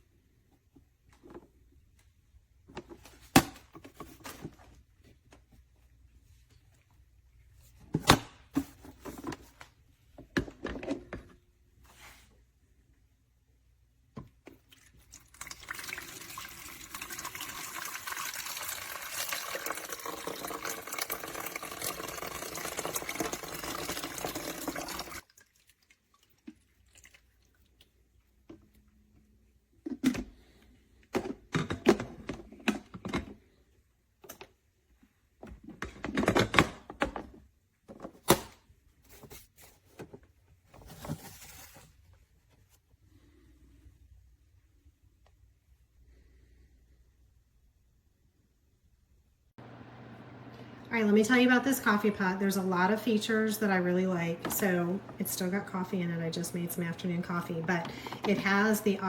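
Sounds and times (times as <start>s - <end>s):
water running from a tap: 14.8s - 27.5s.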